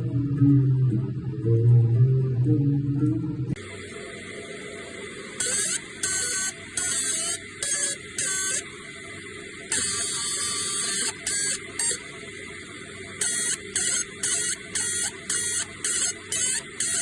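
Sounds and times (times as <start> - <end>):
machine low hum: 0.0 - 17.0
laser engraver buzzing: 5.2 - 17.0.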